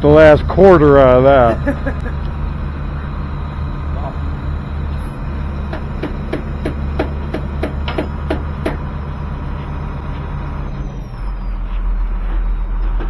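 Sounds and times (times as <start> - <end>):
engine running: 0.0 - 13.0
hammer striking: 5.7 - 8.9.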